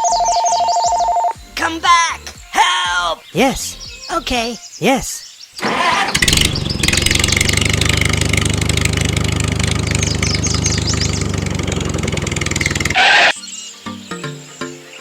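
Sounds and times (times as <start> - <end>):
engine idling: 5.6 - 13.3.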